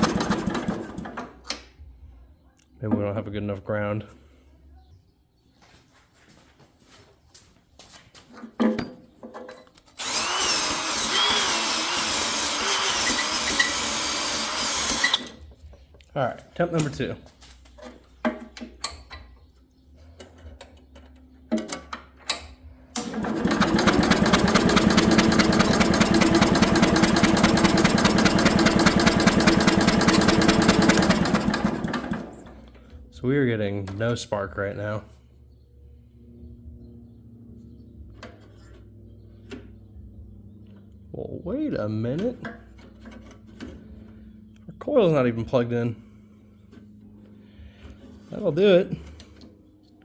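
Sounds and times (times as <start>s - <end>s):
starter cranking engine: 0.0s - 1.4s, 10.0s - 15.4s, 23.0s - 32.6s.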